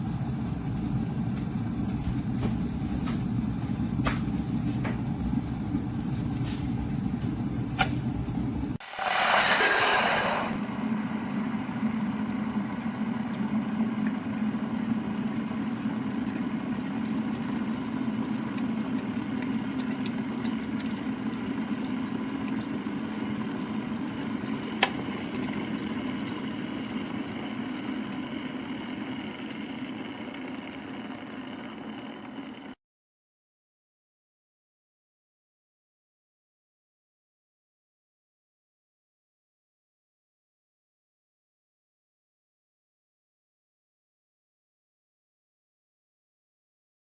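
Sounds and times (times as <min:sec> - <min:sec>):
kettle water boiling: 0:00.0 - 0:10.6, 0:12.1 - 0:32.8.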